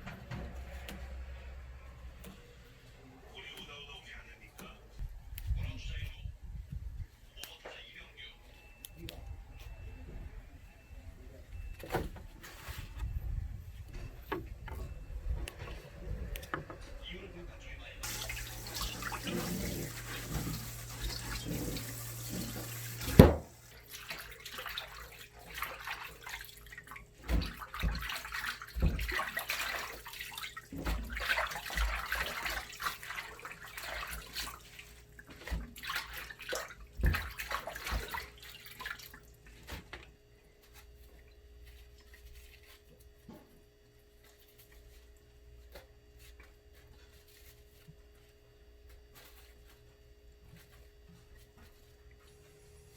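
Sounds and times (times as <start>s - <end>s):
tap running into sink: 18.0s - 23.6s
splashes and knocks in sink: 18.0s - 40.0s.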